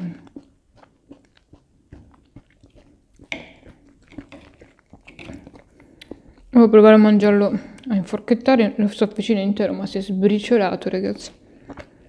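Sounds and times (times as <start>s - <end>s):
person chewing and biting food: 0.0s - 6.6s, 11.3s - 12.0s
small mouth clicks: 0.0s - 6.6s.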